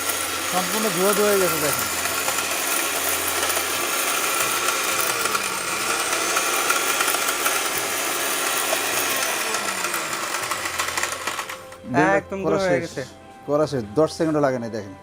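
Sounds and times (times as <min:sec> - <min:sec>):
blender grinding brick: 0:00.0 - 0:11.9.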